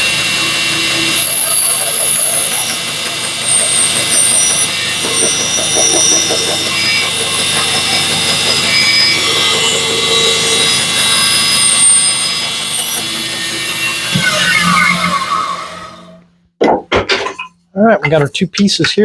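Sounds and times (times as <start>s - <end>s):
power saw cutting wood: 0.0s - 16.3s.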